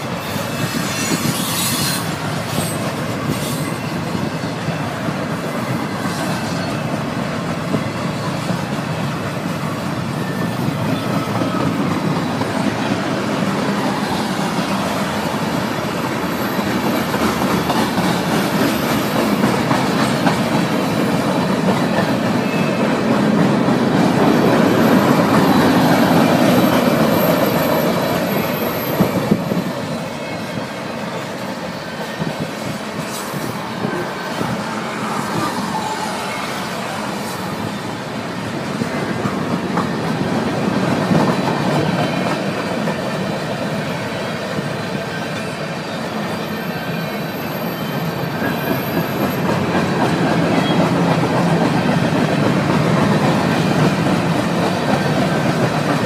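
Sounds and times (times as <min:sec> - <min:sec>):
wheels clacking over rail joints: 0:00.0 - 0:45.7
freight train rumbling past: 0:00.0 - 0:56.0.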